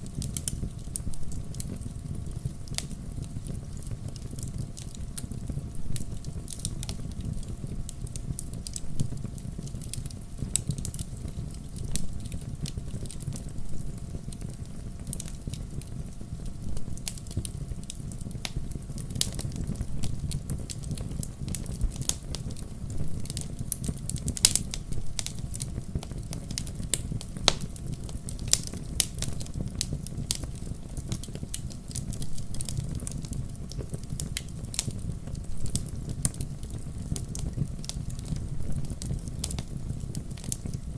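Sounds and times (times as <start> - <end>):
fire crackling and popping: 0.0 - 40.9
fire flames rumbling: 0.0 - 40.9.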